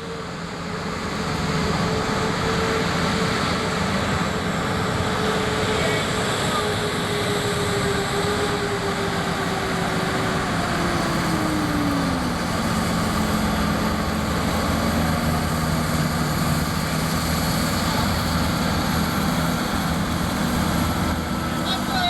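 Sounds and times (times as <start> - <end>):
tractor engine under full load: 7.1 - 22.0.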